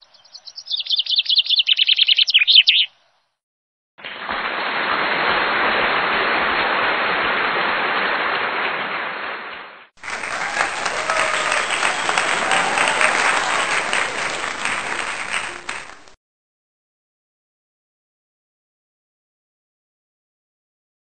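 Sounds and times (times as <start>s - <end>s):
rapid high bird chirping: 0.0s - 3.1s.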